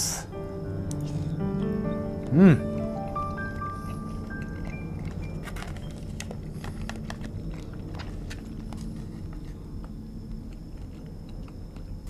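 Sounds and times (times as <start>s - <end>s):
wet chewing clicks and smacks: 2.2s - 12.0s.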